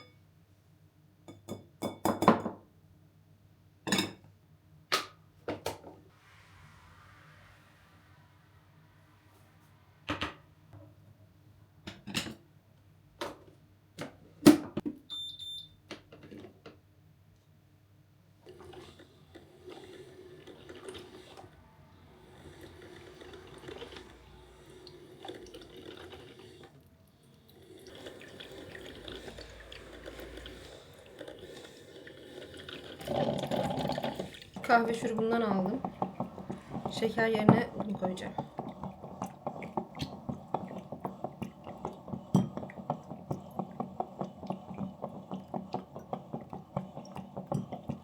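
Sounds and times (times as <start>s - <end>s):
short electronic beep: 15.1s - 15.8s
liquid pouring: 18.5s - 48.0s.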